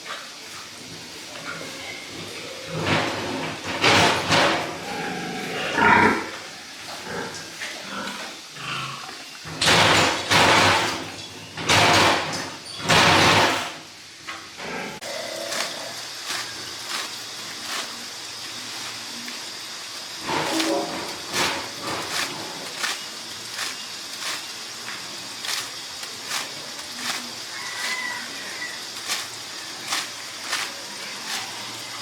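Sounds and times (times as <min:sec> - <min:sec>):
pigs crying: 0:04.0 - 0:09.6, 0:14.6 - 0:17.1, 0:20.2 - 0:23.0.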